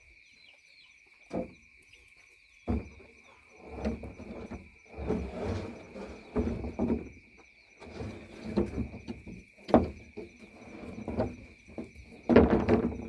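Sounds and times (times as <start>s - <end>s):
knocks clatter and scraping: 2.6s - 13.0s.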